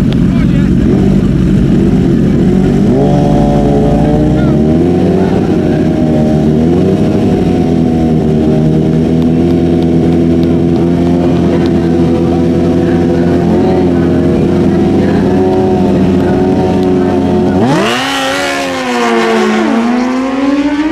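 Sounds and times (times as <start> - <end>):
motorcycle engines idling and revving: 0.0 - 20.9.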